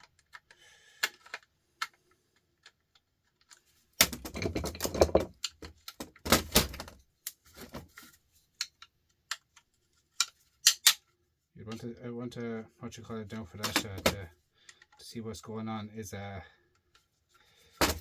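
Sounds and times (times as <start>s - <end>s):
tools and parts clattering: 2.6s - 11.1s, 13.6s - 15.0s, 17.7s - 18.0s.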